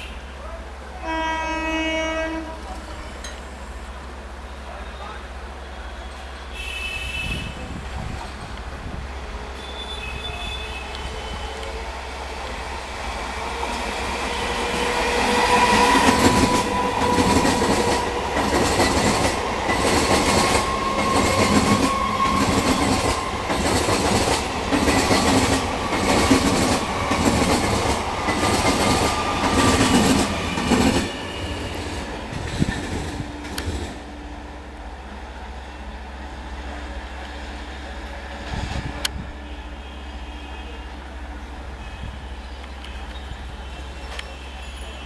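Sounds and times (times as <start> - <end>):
faint train whine: 0.0 - 45.0
train wheels clattering: 13.7 - 34.0.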